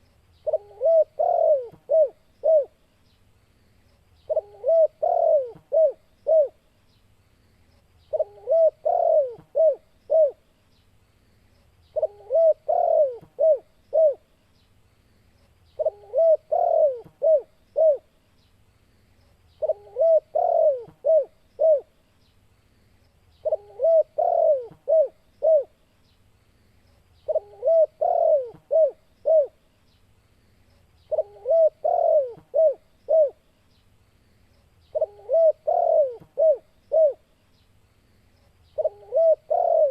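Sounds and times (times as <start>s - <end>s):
dove cooing: 0.0s - 2.8s, 4.3s - 6.6s, 8.1s - 10.4s, 11.9s - 14.3s, 15.8s - 18.1s, 19.6s - 21.9s, 23.4s - 25.8s, 27.2s - 29.6s, 31.1s - 33.4s, 34.9s - 37.3s, 38.8s - 39.9s.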